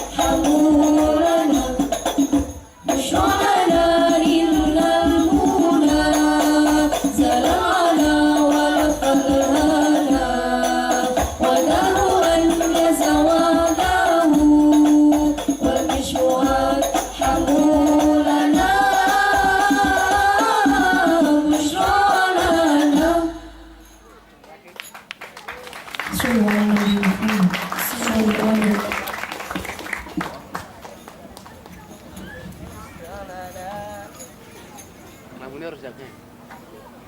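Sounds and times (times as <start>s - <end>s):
voices singing: 0.0s - 24.3s
frame drums: 0.0s - 24.4s.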